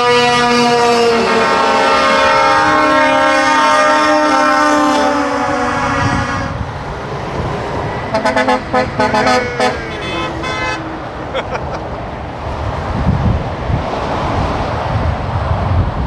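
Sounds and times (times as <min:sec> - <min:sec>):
truck air horn blast: 0:00.0 - 0:06.6, 0:08.1 - 0:11.1
short horn toots: 0:08.1 - 0:10.9.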